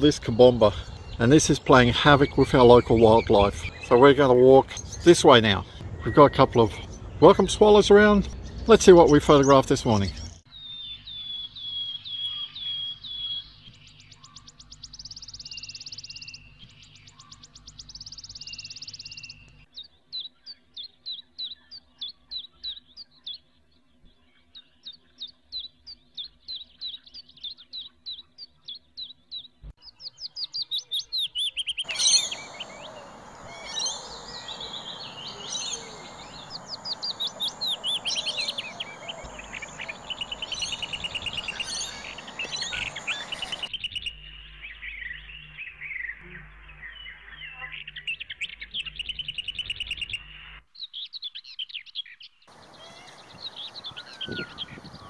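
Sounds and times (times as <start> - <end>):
bird chirps: 0.0 - 55.0
chorus of bird calls: 0.0 - 55.0
bird trills: 10.2 - 23.5, 24.4 - 55.0.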